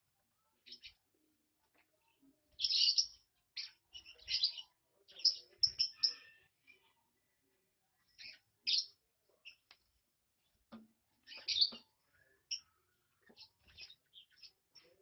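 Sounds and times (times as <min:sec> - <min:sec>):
lovebirds chirping: 0:02.6 - 0:06.8, 0:08.0 - 0:09.8, 0:11.2 - 0:15.0.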